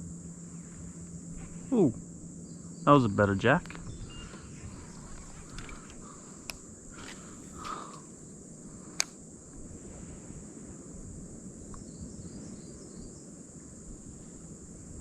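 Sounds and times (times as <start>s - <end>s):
insects droning: 0.0s - 15.0s
low rumble of wind or water: 0.0s - 15.0s
sharp click: 9.0s - 9.2s.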